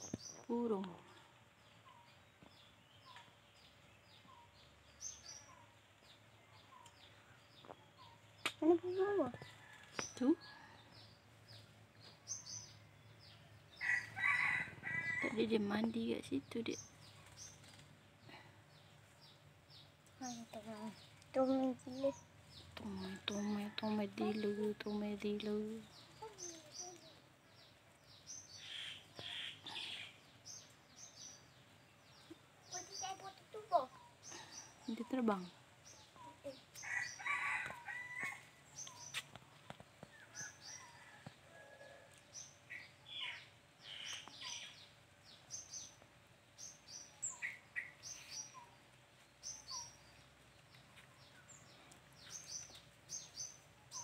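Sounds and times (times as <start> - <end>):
small birds chirping: 0.0 - 54.0
scratchy bird calls: 28.3 - 30.6, 42.3 - 44.9.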